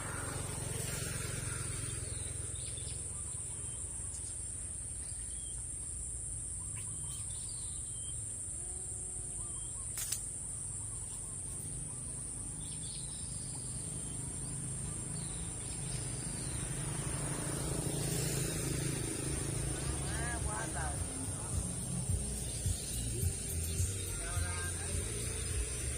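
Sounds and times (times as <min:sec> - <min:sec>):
birds chirping: 0:00.0 - 0:25.9
insect drone: 0:00.0 - 0:25.9
sharp click: 0:09.9 - 0:10.4.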